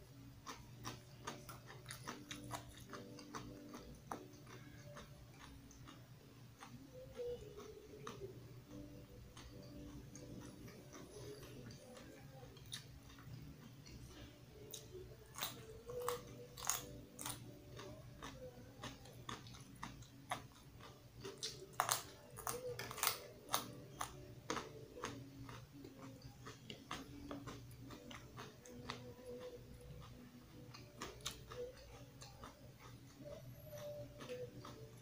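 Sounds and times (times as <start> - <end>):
person chewing raw carrot: 0.3 - 35.0.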